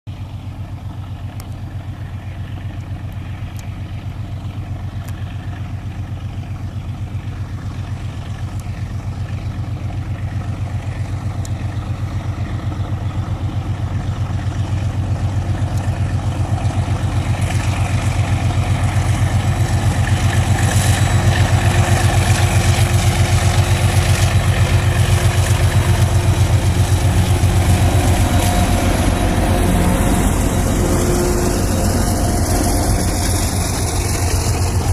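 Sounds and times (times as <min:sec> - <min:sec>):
diesel locomotive engine under load: 0:00.1 - 0:34.9
hiss and rattle: 0:13.7 - 0:34.9.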